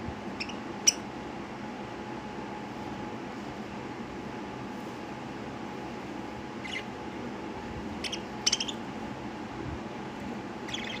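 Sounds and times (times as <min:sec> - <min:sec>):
steady background hum: 0:00.0 - 0:11.0
lovebirds chirping: 0:00.4 - 0:01.1, 0:06.6 - 0:07.0, 0:08.0 - 0:08.9, 0:10.6 - 0:11.0.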